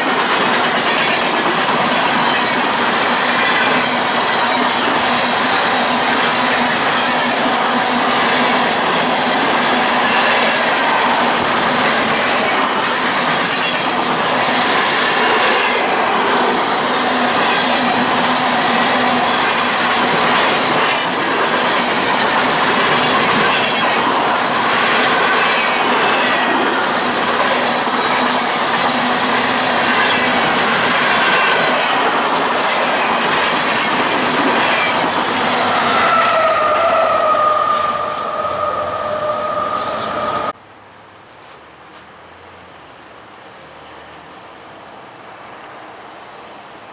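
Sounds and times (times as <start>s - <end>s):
train wheels clattering on rails: 0.0s - 40.6s
high wheel squeal: 33.6s - 40.6s
steady gliding tone: 35.2s - 40.5s.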